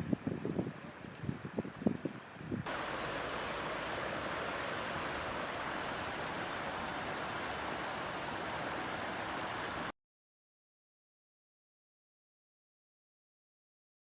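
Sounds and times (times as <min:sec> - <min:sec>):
rushing floodwater: 0:00.0 - 0:09.9.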